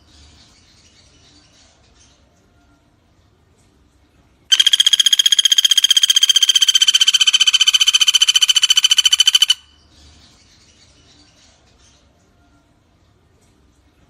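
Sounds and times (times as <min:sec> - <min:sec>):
woodpecker rattling trill: 0:04.5 - 0:09.7.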